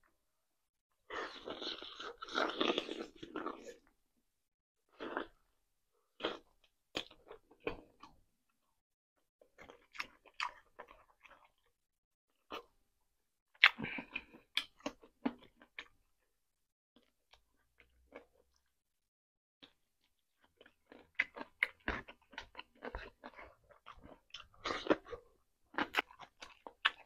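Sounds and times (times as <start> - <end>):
chewing and biting mouth clicks: 20.4 - 27.0.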